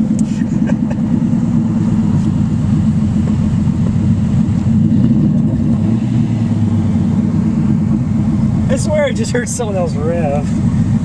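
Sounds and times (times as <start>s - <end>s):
car engine low drone: 0.0s - 11.0s.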